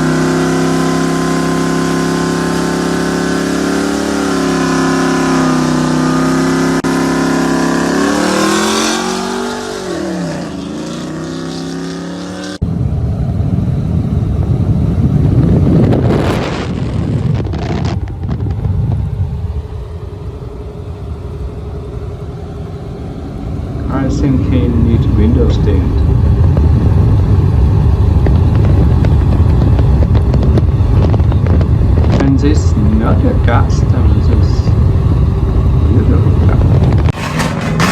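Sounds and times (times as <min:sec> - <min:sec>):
truck engine passing by: 0:00.0 - 0:14.0
rough engine rumble: 0:00.0 - 0:37.9.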